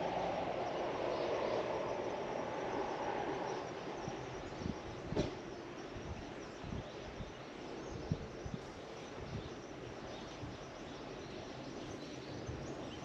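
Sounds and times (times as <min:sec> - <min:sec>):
background rush: 0:00.0 - 0:04.9.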